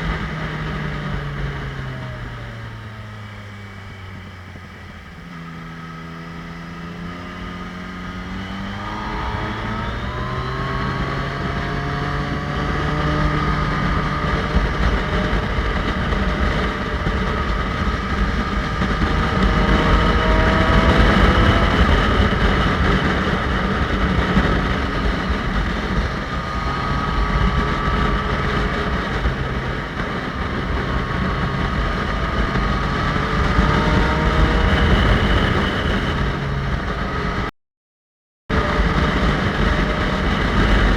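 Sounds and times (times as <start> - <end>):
motorcycle engine revving: 0.0 - 37.5, 38.5 - 40.9.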